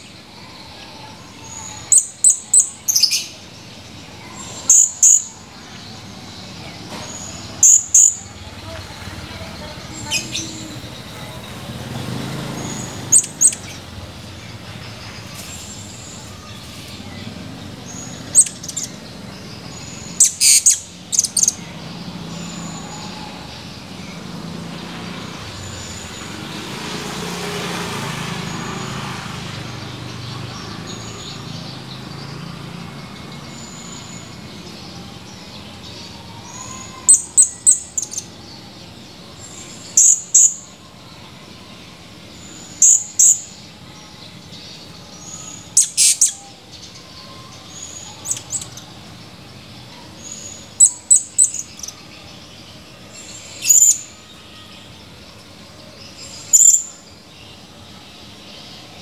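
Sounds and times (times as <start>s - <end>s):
parrot shrill chirps: 20.2s - 21.5s, 45.8s - 46.4s.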